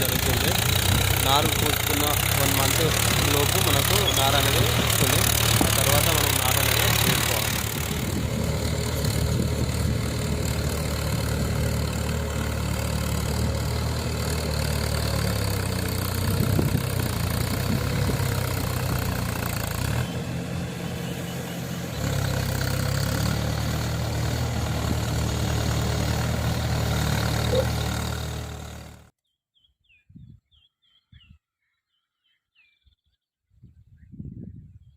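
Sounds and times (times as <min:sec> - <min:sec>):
tractor engine running: 0:00.0 - 0:29.1
faint bird chirps: 0:29.2 - 0:34.9.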